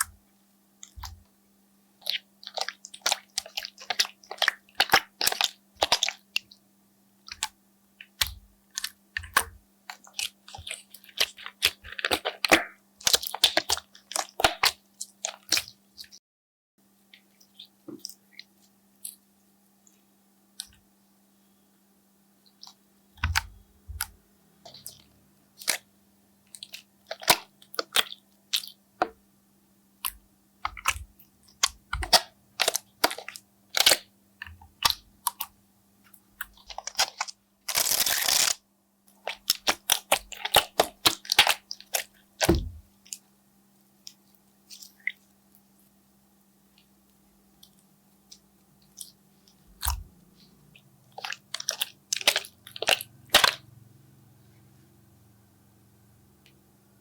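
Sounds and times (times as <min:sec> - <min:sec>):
slime squished by hand: 0:02.0 - 0:06.6, 0:07.3 - 0:16.2, 0:22.5 - 0:25.9, 0:26.5 - 0:29.2, 0:30.0 - 0:35.6, 0:36.4 - 0:43.2, 0:47.6 - 0:53.7
faint steady hum: 0:16.8 - 0:57.0.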